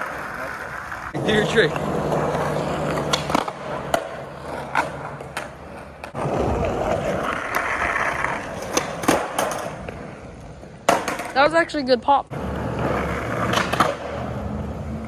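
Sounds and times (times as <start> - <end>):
skateboard clacks: 0.0 - 11.7, 12.3 - 15.0
skateboard wheels rolling on pavement: 0.0 - 15.0.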